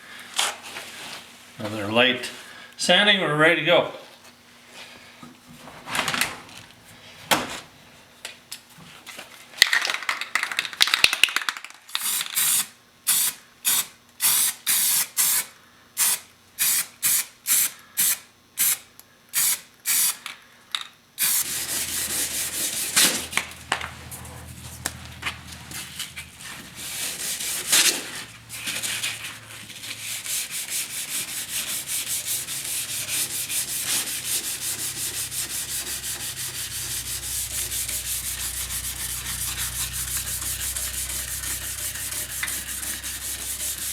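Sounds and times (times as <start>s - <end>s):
sandpaper rasping on car panel: 21.4s - 23.5s, 26.3s - 43.9s
low hum: 21.4s - 43.9s.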